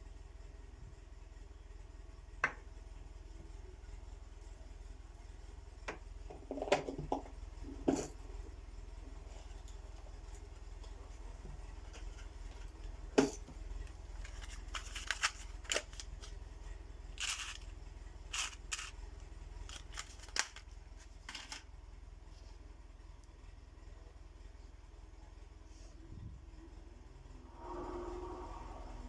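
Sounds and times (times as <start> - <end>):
low steady hum: 0.0 - 29.0
fishing tackle clicks and rustles: 14.1 - 16.4, 17.2 - 17.7, 18.3 - 19.0, 19.6 - 21.6.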